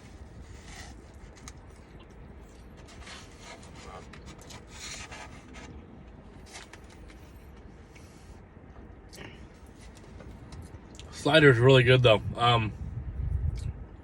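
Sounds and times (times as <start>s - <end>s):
food rustling and chewing: 0.0s - 8.1s
steady low rumble: 0.0s - 14.0s.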